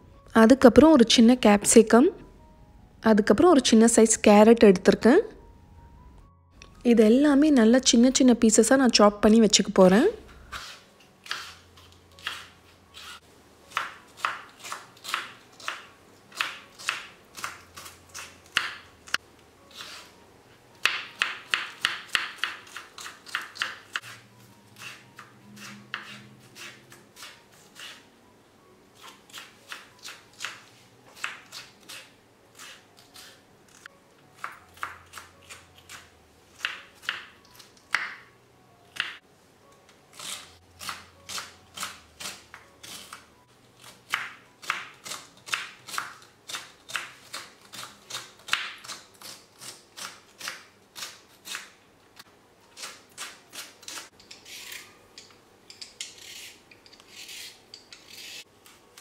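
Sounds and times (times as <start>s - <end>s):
knife chopping on wooden board: 20.8s - 24.2s, 34.4s - 36.0s, 44.1s - 51.7s
carrot peeling scrape: 56.0s - 58.5s.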